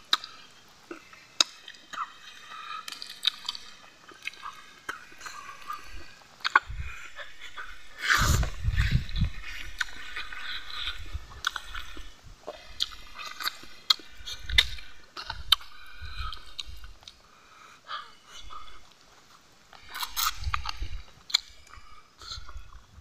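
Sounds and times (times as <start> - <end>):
sharp mouth clicks: 0.0 - 0.4, 2.8 - 17.2, 19.8 - 22.6
wet chewing: 0.0 - 22.9
lip smacks: 0.1 - 0.4, 1.4 - 17.2, 19.7 - 22.6.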